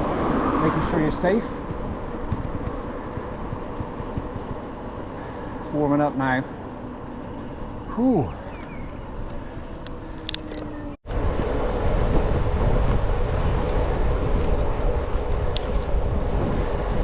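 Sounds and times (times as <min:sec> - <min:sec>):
wind on microphone: 0:00.0 - 0:05.4, 0:11.1 - 0:17.0
bicycle road noise: 0:00.0 - 0:17.0.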